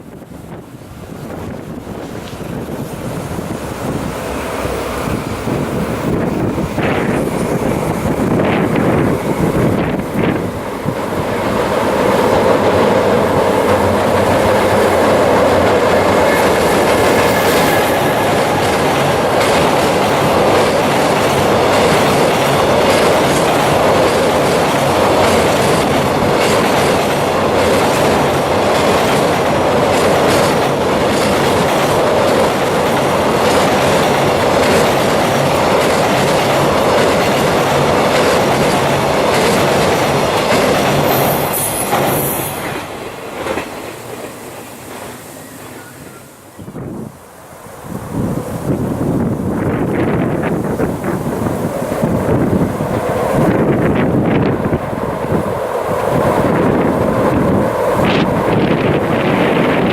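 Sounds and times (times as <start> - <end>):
clickety-clack over rail joints: 0.0 - 46.2, 48.7 - 59.9
train wheels rumbling: 0.0 - 59.9.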